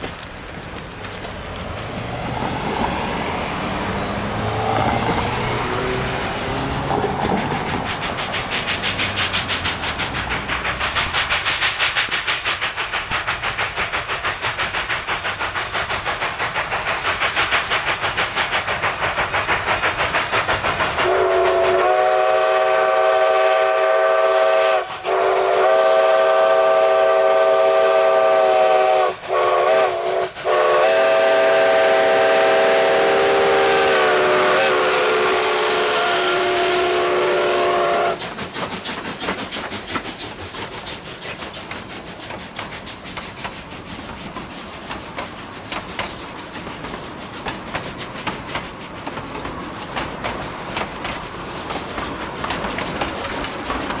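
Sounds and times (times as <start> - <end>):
steam locomotive chuffing: 0.0 - 54.0
steam whistle blasts: 21.0 - 38.2.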